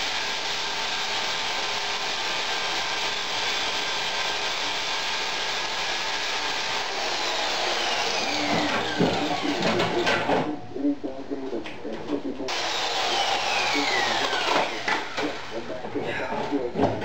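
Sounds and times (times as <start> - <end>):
power grinder on steel: 0.0 - 9.6, 12.5 - 15.6.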